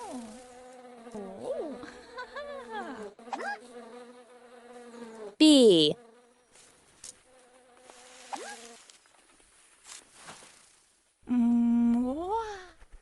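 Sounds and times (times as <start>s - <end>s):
person humming: 0.0s - 3.6s, 11.2s - 12.8s.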